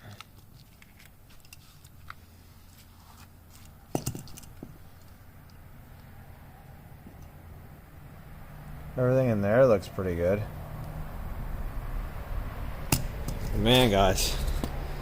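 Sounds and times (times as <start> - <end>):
metal parts clicking and tapping: 3.5 - 5.1.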